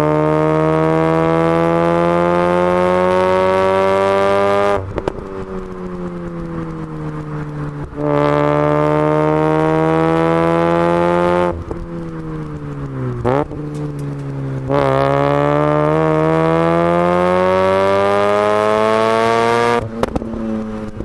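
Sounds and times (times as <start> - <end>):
rotary engine revving: 0.0 - 21.0
exhaust pops: 4.7 - 10.2, 11.5 - 16.0, 19.8 - 21.0.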